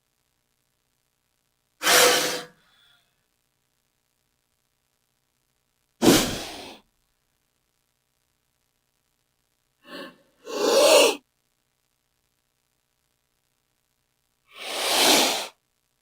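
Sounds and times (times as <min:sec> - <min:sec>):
snake hissing: 0:01.8 - 0:02.6, 0:06.0 - 0:06.8, 0:09.9 - 0:11.2, 0:14.5 - 0:15.6.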